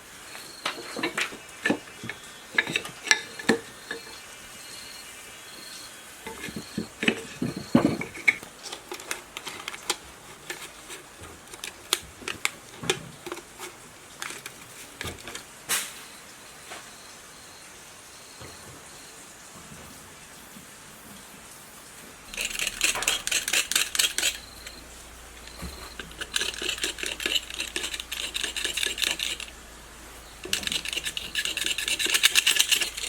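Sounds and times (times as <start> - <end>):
metal parts clinking and knocking: 0.6 - 4.2, 22.3 - 29.6, 30.2 - 33.0.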